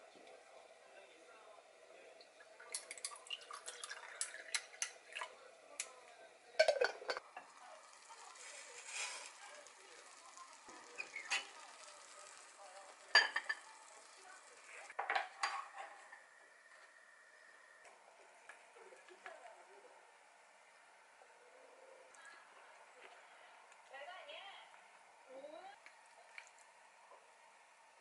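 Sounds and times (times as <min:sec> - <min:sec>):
tea pouring: 0:01.9 - 0:19.6
dishes clattering: 0:06.6 - 0:07.6, 0:13.0 - 0:13.7, 0:15.0 - 0:16.2
ice clinking in a glass: 0:13.1 - 0:13.8.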